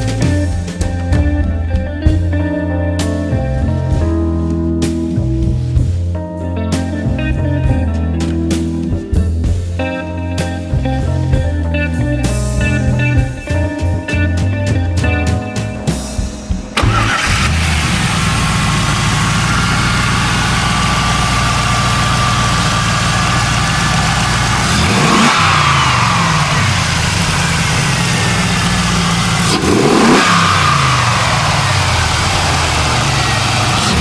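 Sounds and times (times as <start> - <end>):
car engine idling and revving: 16.8 - 34.0.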